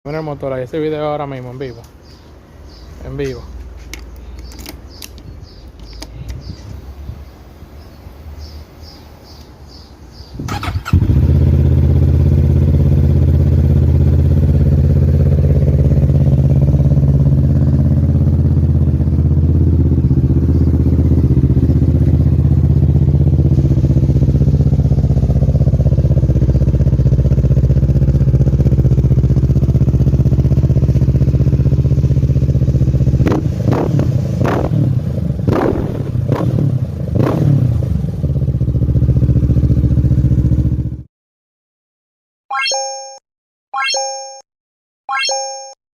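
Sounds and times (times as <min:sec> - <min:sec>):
motorcycle engine starting and idling: 0:10.3 - 0:41.0
motorcycle engine revving: 0:10.4 - 0:41.1.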